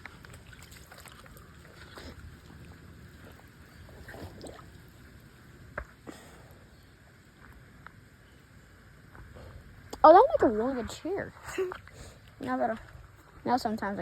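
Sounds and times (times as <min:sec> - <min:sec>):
water sloshing around legs: 0:00.0 - 0:05.4.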